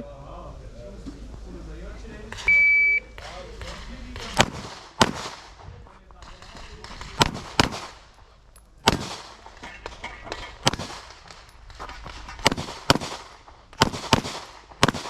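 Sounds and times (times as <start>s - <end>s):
handgun shots: 2.3s - 15.0s.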